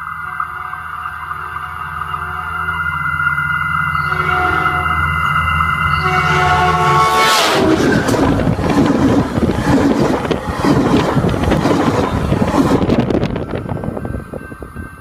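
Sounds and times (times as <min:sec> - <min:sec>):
steel wheels rushing on rail: 0:00.0 - 0:15.0
train horn: 0:00.3 - 0:03.2, 0:03.9 - 0:08.1
wheels clicking and clanking: 0:07.7 - 0:13.6.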